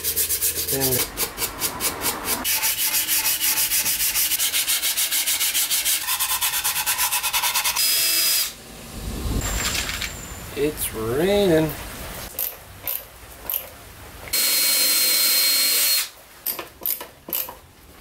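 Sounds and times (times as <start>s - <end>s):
sandpaper rubbing on wood: 0.0s - 7.8s.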